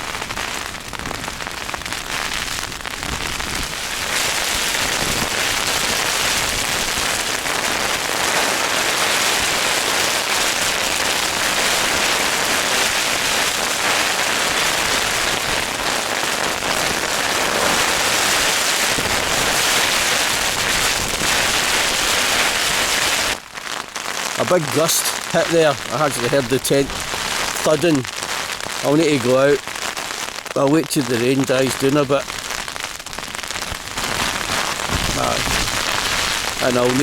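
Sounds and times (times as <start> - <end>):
heavy rain on a tent: 0.0 - 37.0.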